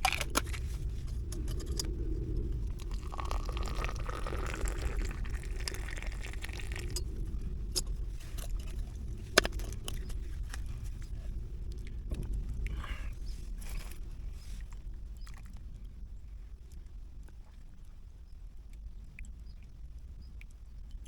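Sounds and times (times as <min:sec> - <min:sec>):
crunching and clicking: 0:00.0 - 0:02.0
low steady rumble: 0:00.0 - 0:21.0.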